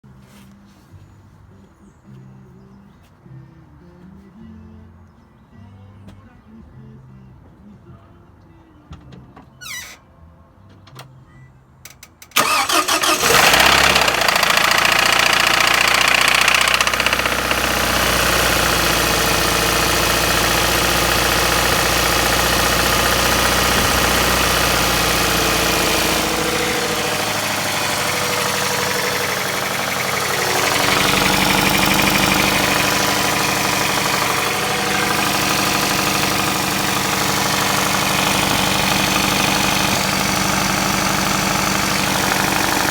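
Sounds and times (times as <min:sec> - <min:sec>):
car engine starting and idling: 0:11.9 - 0:42.9
engine knocking: 0:12.4 - 0:42.9.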